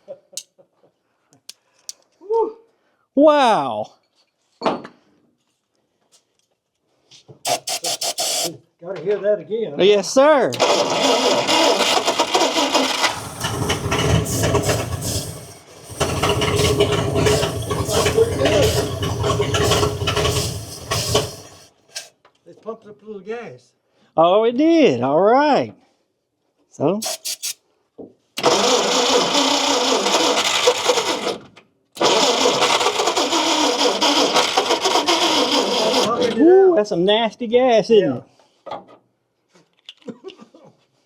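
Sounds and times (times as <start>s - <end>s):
car engine cranking and firing: 10.6s - 22.1s, 28.4s - 36.3s.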